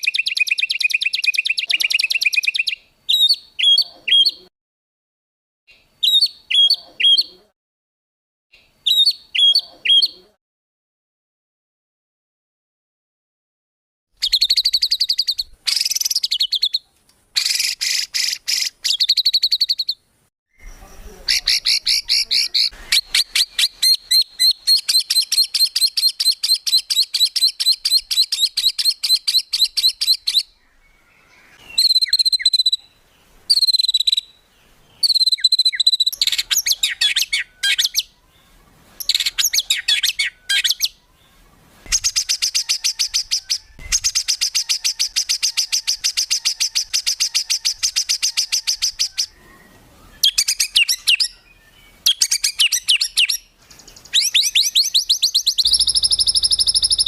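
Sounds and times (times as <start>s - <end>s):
bird whistled phrases: 0.0s - 4.4s, 6.0s - 7.4s, 8.9s - 10.3s, 14.2s - 16.8s, 17.4s - 30.6s, 31.4s - 32.9s, 33.5s - 34.4s, 35.0s - 38.2s, 39.0s - 41.0s, 41.9s - 53.4s, 54.1s - 57.0s
songbird trills: 0.0s - 4.5s, 14.2s - 57.0s.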